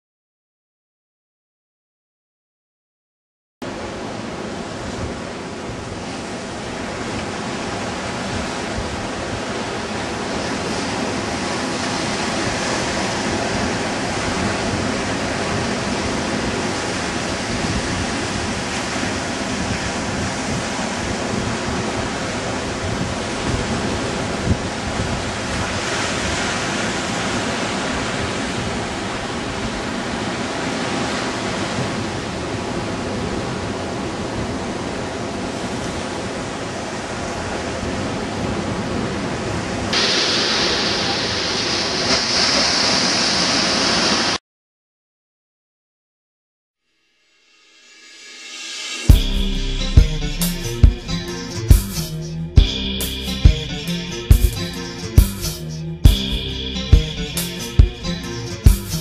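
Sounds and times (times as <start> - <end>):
ocean surf rushing: 3.6 - 44.4, 48.7 - 59.0
wind buffeting microphone: 4.8 - 30.6.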